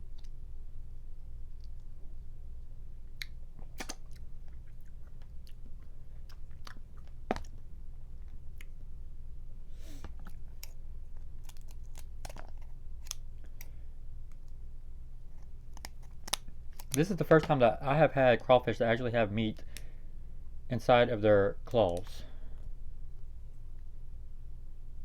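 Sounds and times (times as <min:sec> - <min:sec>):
low steady hum: 0:00.0 - 0:25.0
chewing: 0:03.0 - 0:08.9, 0:09.8 - 0:14.6, 0:15.3 - 0:17.0
crawfish shells cracking: 0:03.2 - 0:08.8, 0:10.0 - 0:14.6, 0:15.3 - 0:17.7.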